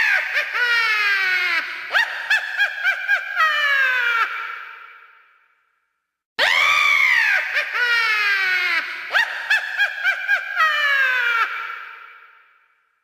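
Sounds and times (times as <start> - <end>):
cackling witch laugh: 0.0 - 5.0, 7.2 - 12.4.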